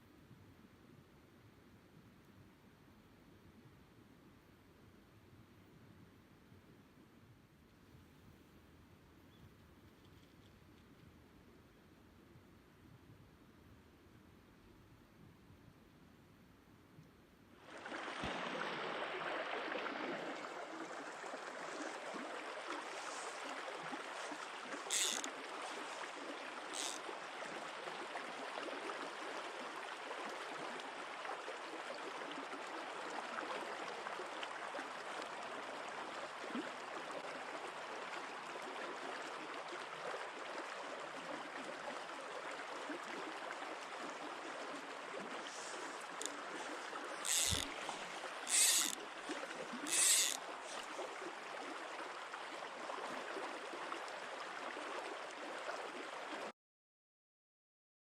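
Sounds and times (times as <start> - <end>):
stream water rushing: 17.6 - 56.5.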